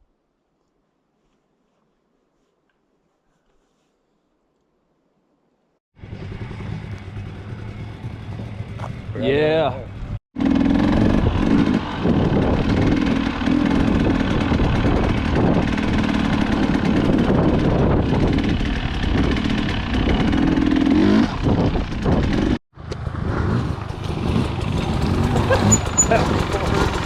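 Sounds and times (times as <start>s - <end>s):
dirt bike engine revving: 10.4s - 27.0s.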